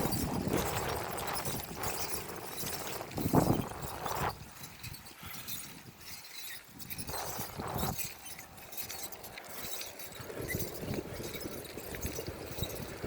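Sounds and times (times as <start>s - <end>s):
bicycle rattling: 0.0s - 13.0s
bicycle tyres rolling: 0.0s - 13.0s.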